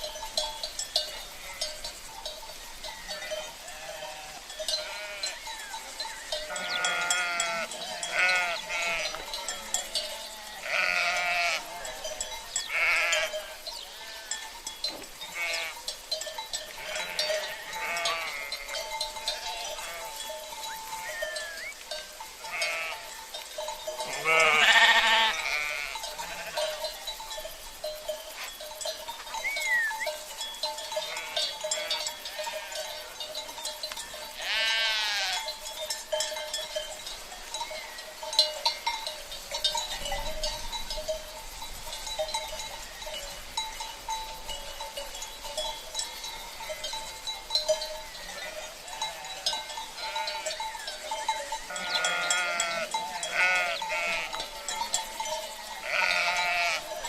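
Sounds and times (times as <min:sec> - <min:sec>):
livestock bells clanking: 0:00.0 - 0:57.0
sheep bleating: 0:03.1 - 0:05.4, 0:06.5 - 0:14.4, 0:15.3 - 0:15.8, 0:16.8 - 0:21.7, 0:22.4 - 0:23.1, 0:24.1 - 0:26.8, 0:31.0 - 0:32.8, 0:34.4 - 0:35.5, 0:48.4 - 0:50.6, 0:51.7 - 0:54.9, 0:55.8 - 0:57.0.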